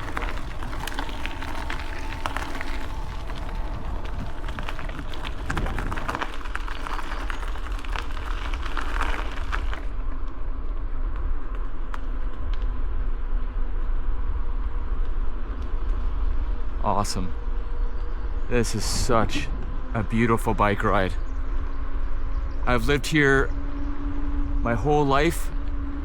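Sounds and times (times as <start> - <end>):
wind buffeting microphone: 0.0 - 10.1, 13.7 - 26.0
tyres crackling over gravel: 0.0 - 12.7, 22.7 - 23.5, 24.6 - 25.5
faint motor whine: 0.0 - 26.0.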